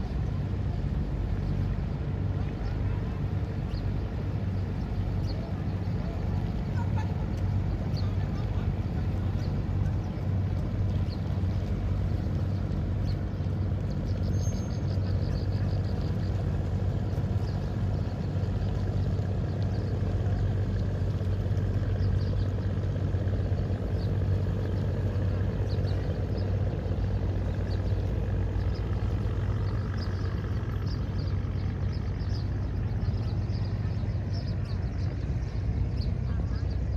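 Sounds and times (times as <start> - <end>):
low outdoor rumble: 0.0 - 36.9.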